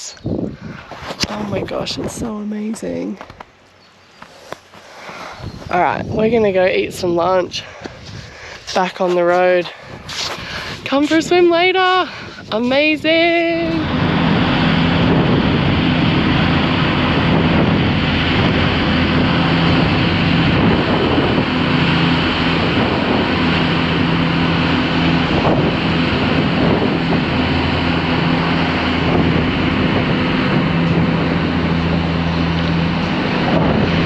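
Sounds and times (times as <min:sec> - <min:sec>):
wind noise on microphone: 0:00.0 - 0:03.6, 0:04.3 - 0:34.0
vehicle engine humming: 0:00.4 - 0:34.0.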